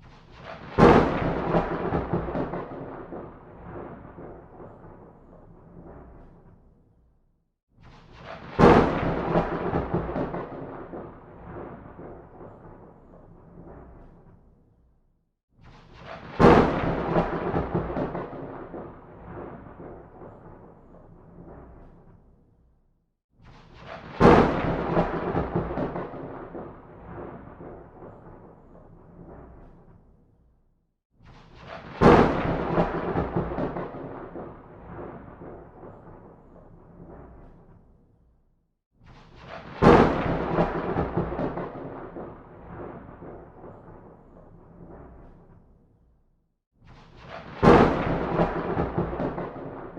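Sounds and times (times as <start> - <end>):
thunder rumbling and cracking: 0.1 - 6.8, 7.9 - 14.5, 15.8 - 22.3, 23.5 - 30.1, 31.3 - 37.8, 39.1 - 45.7, 47.2 - 49.9.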